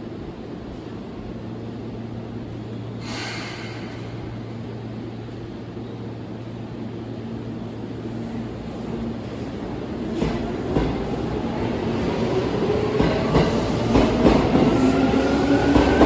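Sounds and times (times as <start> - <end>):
electric train humming: 3.8 - 16.0.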